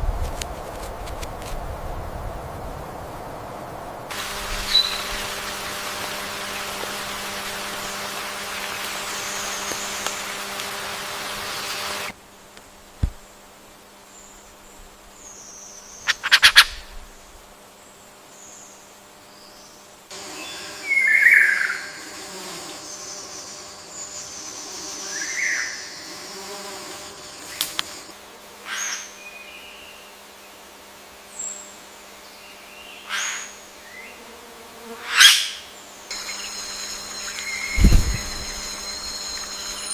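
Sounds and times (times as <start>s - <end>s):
short bird calls: 15.3s - 17.0s
faint high bird whistles: 36.1s - 39.9s.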